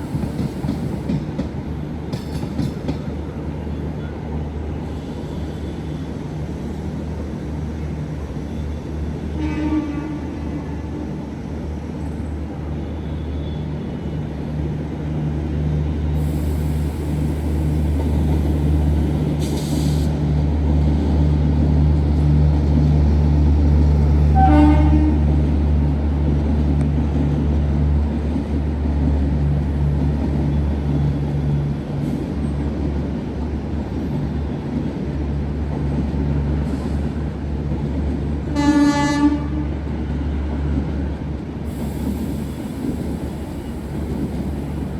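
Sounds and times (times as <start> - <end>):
electric train rumbling: 0.0 - 44.9
train horn toots: 9.3 - 11.0, 24.3 - 25.4, 38.5 - 39.8.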